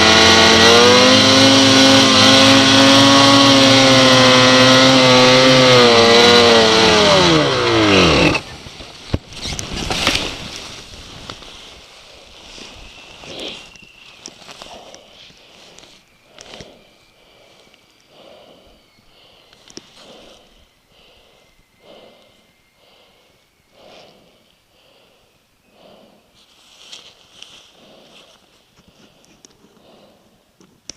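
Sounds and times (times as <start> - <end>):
snowmobile engine winding down: 0.0 - 8.8
person breathing: 14.4 - 30.6.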